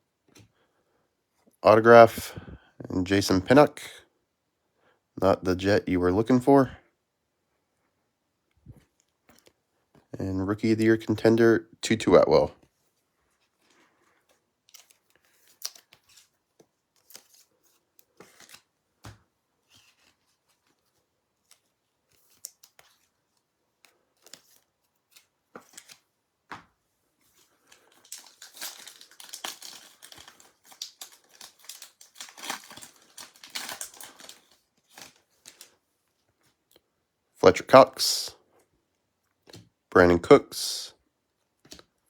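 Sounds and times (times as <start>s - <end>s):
wrapper crinkling and tearing: 27.6s - 35.8s.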